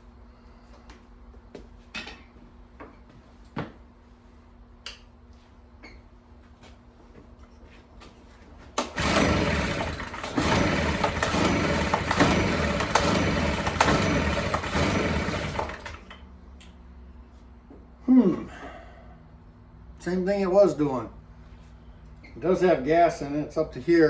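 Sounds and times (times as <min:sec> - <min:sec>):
recoil starter pulls: 0:08.8 - 0:16.2.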